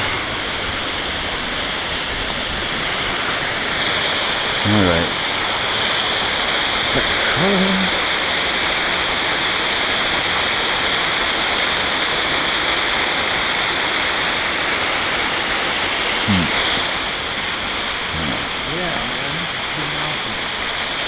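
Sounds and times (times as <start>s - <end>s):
waterfall rushing over rocks: 0.0s - 21.0s
person's short voiced sound: 7.0s - 8.0s, 16.3s - 16.6s, 18.1s - 20.4s.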